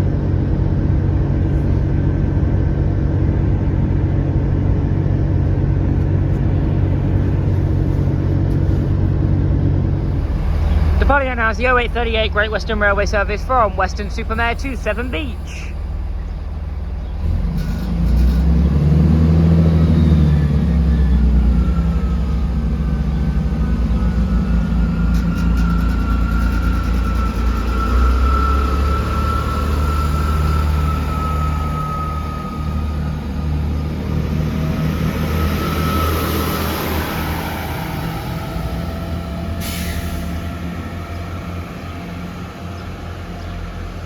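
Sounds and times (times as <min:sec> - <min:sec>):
diesel train engines under load: 0:00.0 - 0:44.0
steady high whine: 0:09.8 - 0:17.6, 0:20.4 - 0:43.2.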